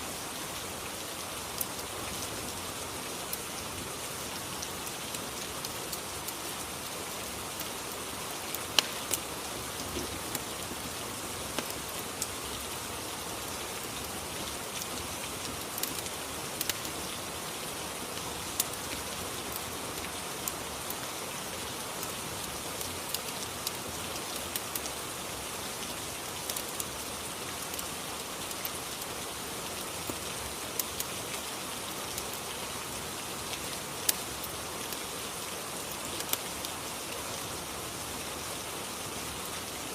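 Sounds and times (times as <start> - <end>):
steady rain: 0.0 - 39.9
sharp ticks and pops: 8.5 - 10.5, 11.5 - 12.3, 14.8 - 16.9, 26.4 - 26.8.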